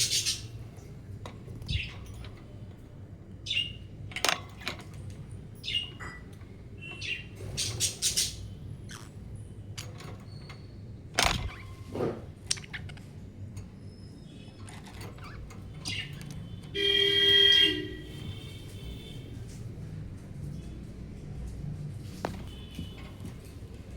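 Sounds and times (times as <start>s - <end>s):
budgerigars chirping: 0.0s - 0.6s, 3.4s - 3.8s, 6.8s - 9.2s, 14.7s - 17.6s.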